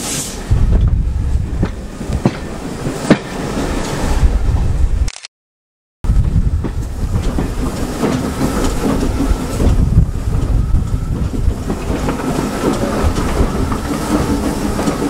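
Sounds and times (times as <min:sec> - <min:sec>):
train wheels rumbling on track: 0:00.0 - 0:04.9, 0:06.1 - 0:15.0
clatter over rail joints: 0:01.6 - 0:04.0, 0:06.2 - 0:15.0.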